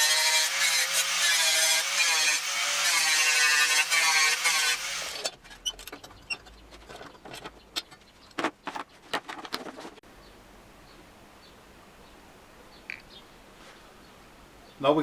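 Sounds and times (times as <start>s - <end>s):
grinder grinding steel: 0.0s - 7.9s.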